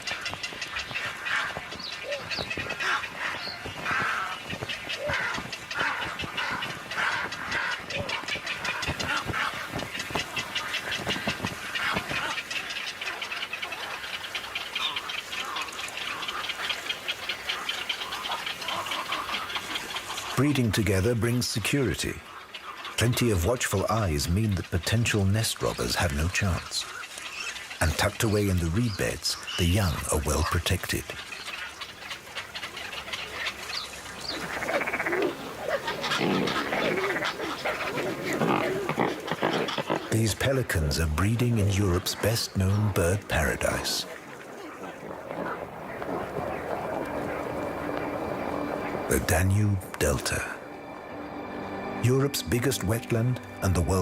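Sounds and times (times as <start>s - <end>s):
harsh bird calls: 0.0s - 54.0s
waterbirds ticking calls: 0.0s - 54.0s.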